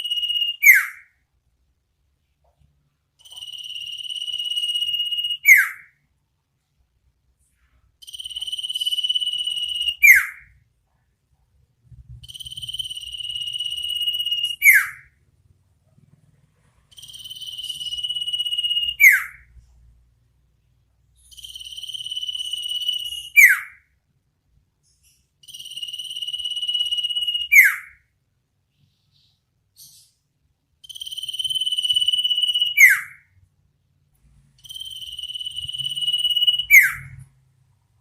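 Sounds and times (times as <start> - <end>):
bird trilling call with whistle: 0.0 - 1.1, 3.6 - 5.9, 8.1 - 10.5, 12.2 - 15.1, 17.0 - 19.5, 22.1 - 23.8, 26.0 - 28.0, 31.4 - 33.2, 35.0 - 37.2.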